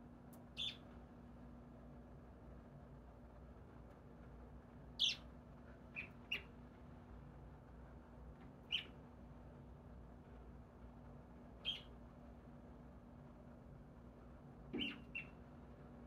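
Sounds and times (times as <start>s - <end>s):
faint steady hum: 0.0s - 16.0s
bird high-pitched calls: 0.6s - 0.8s, 5.0s - 5.2s, 11.6s - 11.9s, 14.8s - 15.4s.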